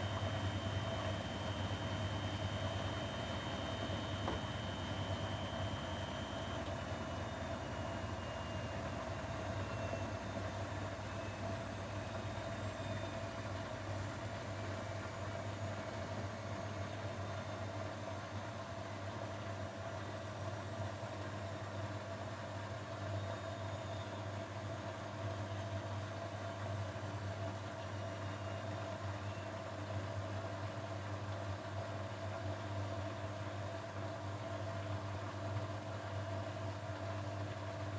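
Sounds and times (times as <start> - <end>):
washing machine motor hum: 0.0 - 9.5.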